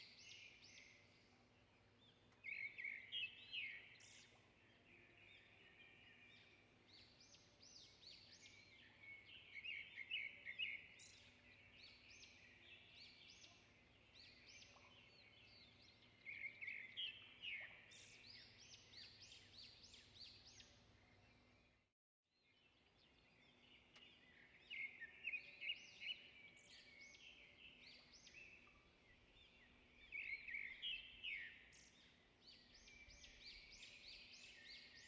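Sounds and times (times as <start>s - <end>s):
songbirds chirping: 0.0s - 35.0s.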